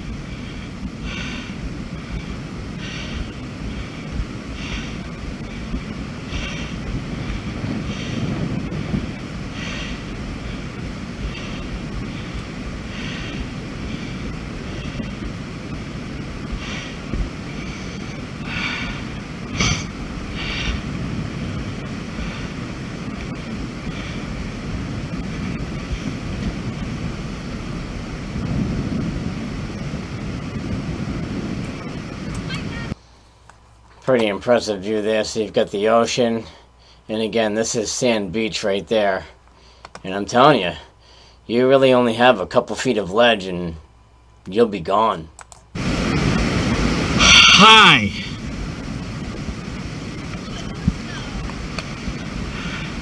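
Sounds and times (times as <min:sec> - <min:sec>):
wind buffeting microphone: 0:00.0 - 0:33.0, 0:45.8 - 0:47.3, 0:48.1 - 0:53.0
short hissing sounds: 0:00.4 - 0:15.7, 0:16.3 - 0:21.0.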